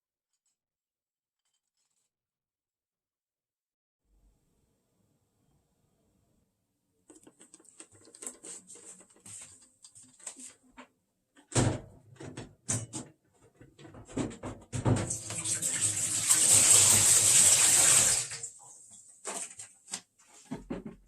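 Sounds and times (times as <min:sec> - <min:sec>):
water running: 0:15.0 - 0:19.5.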